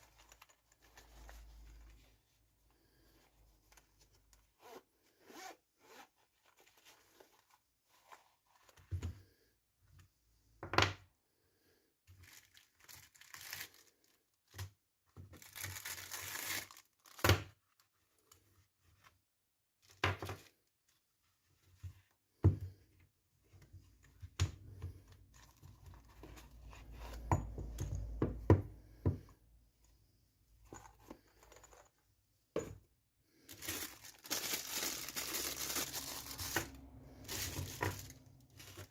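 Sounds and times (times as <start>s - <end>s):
packaging crinkling and tearing: 12.2s - 14.3s, 15.4s - 17.9s, 33.5s - 38.9s.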